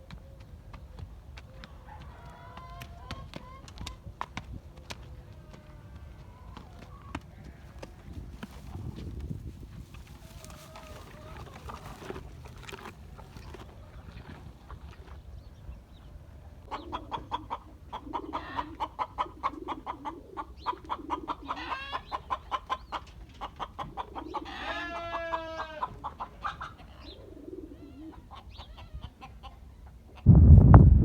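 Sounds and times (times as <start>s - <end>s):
chickens clucking: 0.1s - 15.2s, 16.6s - 30.3s
wind gust on microphone: 8.0s - 11.3s, 30.2s - 31.0s.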